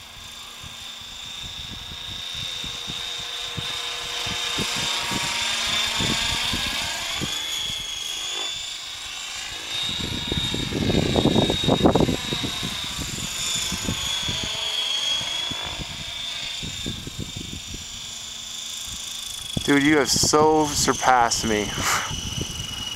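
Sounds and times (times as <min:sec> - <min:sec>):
helicopter motor and gear whine: 0:00.0 - 0:22.9.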